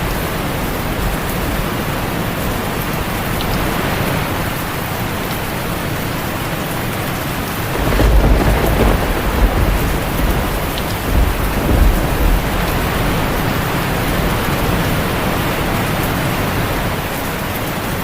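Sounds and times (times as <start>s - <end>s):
heavy rain on a tin roof: 0.0s - 18.0s
thunder rumble: 7.7s - 17.0s.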